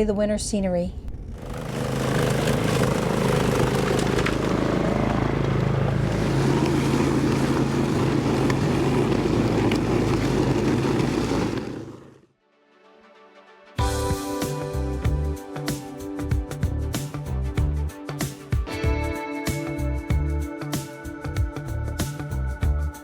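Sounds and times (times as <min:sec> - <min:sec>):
snowblower engine running: 0:01.3 - 0:12.2.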